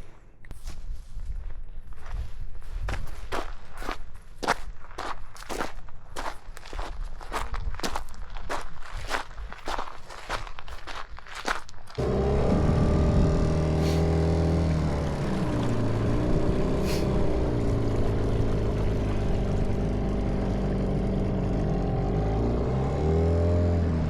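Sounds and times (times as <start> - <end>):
motorboat engine running: 12.0 - 24.0.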